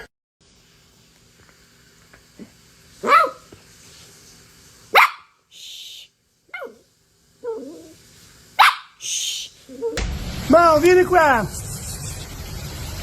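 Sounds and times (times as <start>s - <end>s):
dog barking: 3.0s - 3.5s, 4.9s - 5.4s, 6.5s - 6.8s, 8.6s - 9.0s.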